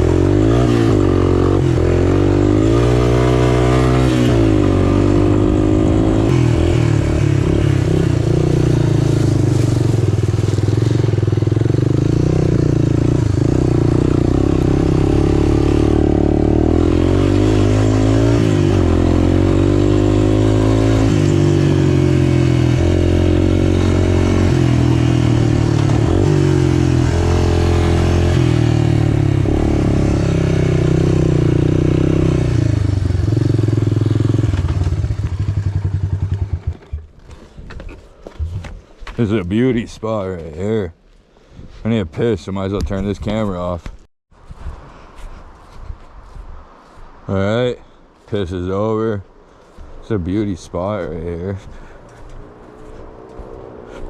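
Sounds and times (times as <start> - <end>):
motorcycle engine revving: 0.0 - 37.2, 50.3 - 54.0.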